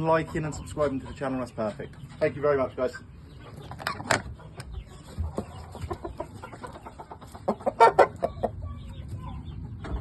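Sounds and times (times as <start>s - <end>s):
fowl clucking: 0.0s - 1.7s, 2.9s - 8.9s
sharp chicken calls: 2.9s - 9.0s.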